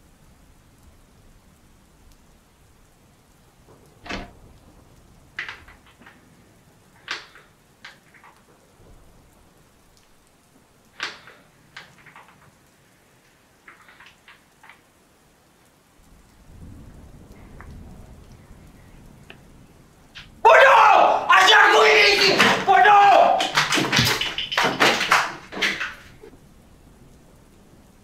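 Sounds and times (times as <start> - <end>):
light clicks: 7.0 - 8.6, 10.0 - 14.9
water splashing in sink: 21.5 - 26.3.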